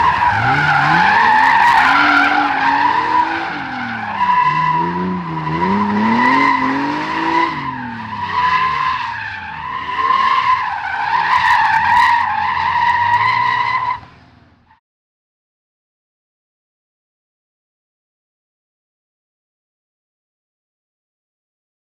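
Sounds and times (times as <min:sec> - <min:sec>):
tyres squealing: 0:00.0 - 0:14.0
car engine revving: 0:00.0 - 0:14.6.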